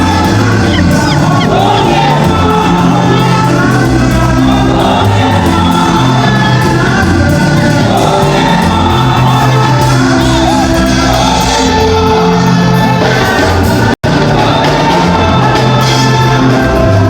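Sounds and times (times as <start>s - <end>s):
music with singing: 0.0s - 17.0s
voices shouting and whooping: 0.1s - 2.4s.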